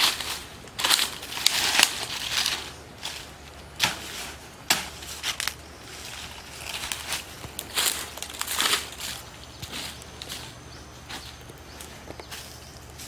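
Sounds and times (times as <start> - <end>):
crunching and rustling: 0.0 - 13.0.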